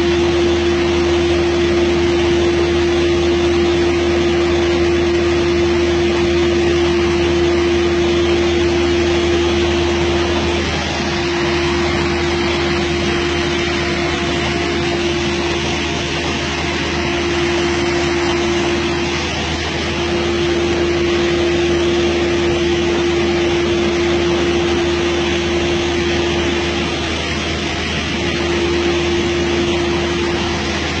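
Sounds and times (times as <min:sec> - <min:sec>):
panel saw running: 0:00.0 - 0:31.0.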